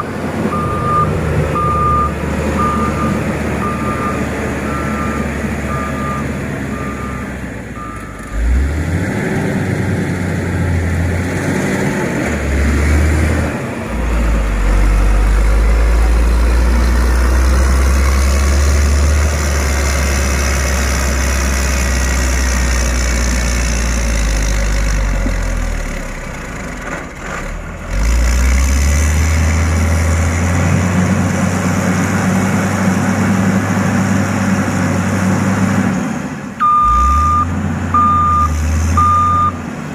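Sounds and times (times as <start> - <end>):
reversing alarm beeping: 0.0 - 8.2, 36.6 - 39.6
diesel engine rumbling under load: 0.0 - 39.9.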